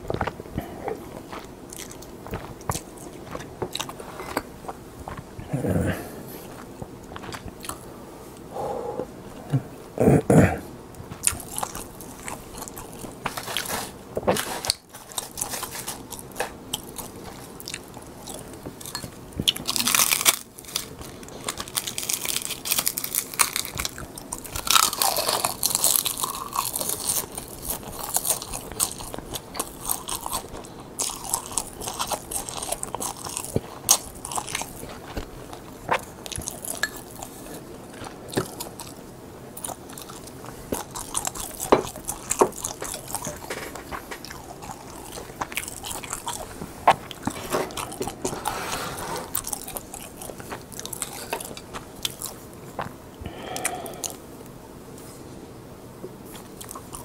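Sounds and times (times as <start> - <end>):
chewing: 0.0 - 10.3, 10.9 - 54.2, 56.2 - 57.0
crisp seaweed crunching: 19.4 - 52.9.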